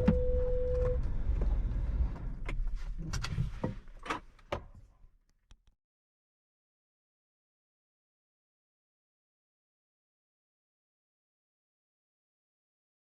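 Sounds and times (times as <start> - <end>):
electronic beep tone: 0.0 - 1.0
engine and road rumble: 0.0 - 4.6.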